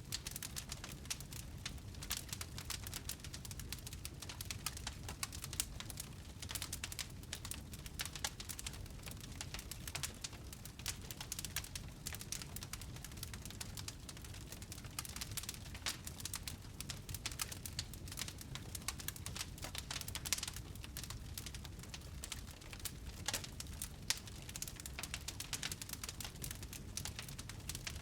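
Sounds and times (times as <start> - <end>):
low rumble of fire: 0.0 - 28.0
wood fire crackling and popping: 0.0 - 28.0.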